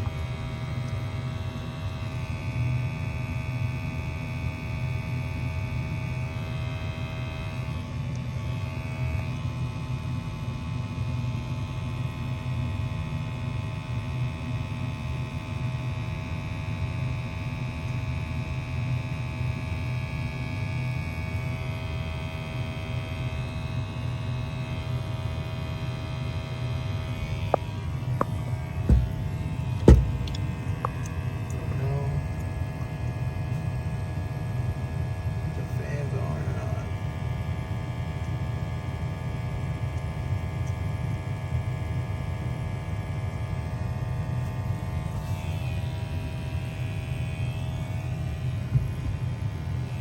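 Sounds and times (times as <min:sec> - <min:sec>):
furnace motor hum: 0:00.0 - 0:50.0
sharp knocks: 0:27.5 - 0:31.0.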